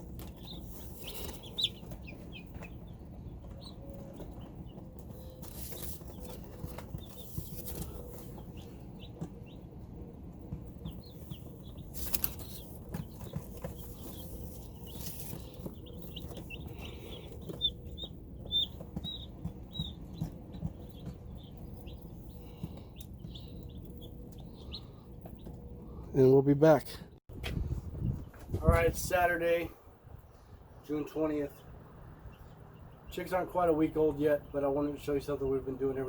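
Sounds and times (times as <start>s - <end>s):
rustling and scuffling: 0.0s - 25.8s
chicks peeping: 0.0s - 26.5s, 27.6s - 36.0s.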